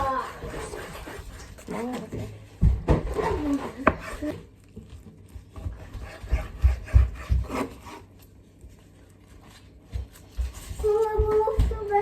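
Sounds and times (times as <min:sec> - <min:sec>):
knife cutting on cutting board: 0:03.0 - 0:04.4, 0:05.7 - 0:08.1.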